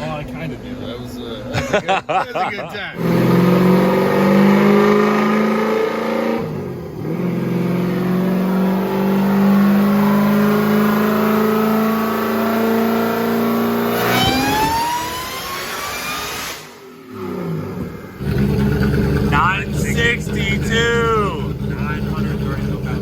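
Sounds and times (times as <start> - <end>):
supercharged car engine running: 18.2 - 23.0.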